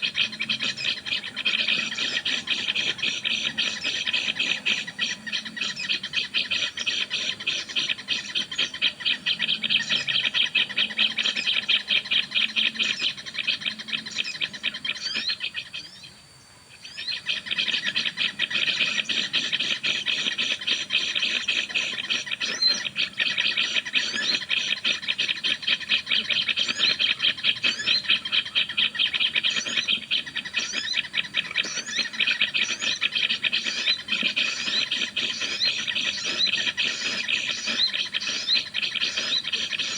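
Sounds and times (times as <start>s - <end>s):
harsh bird chattering through speaker: 17.2s - 39.9s.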